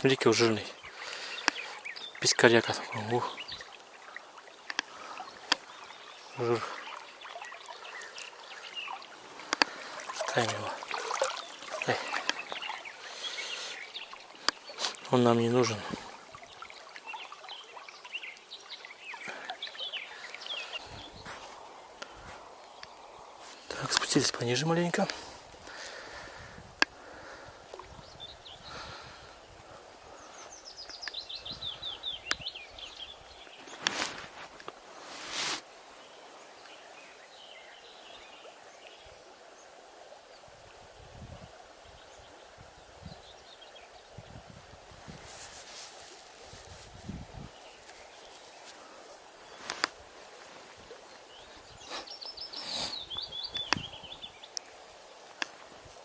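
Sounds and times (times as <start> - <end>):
river flowing over riffle: 0.0 - 41.0, 41.6 - 56.0
faint background hiss: 0.0 - 56.0
songbirds chirping: 0.0 - 56.0
faint bird chirps: 51.1 - 54.8.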